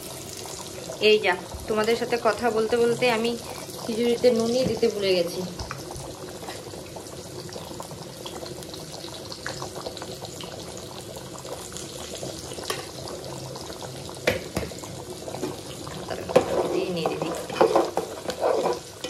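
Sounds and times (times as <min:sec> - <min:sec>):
pot bubbling and simmering: 0:00.0 - 0:19.0.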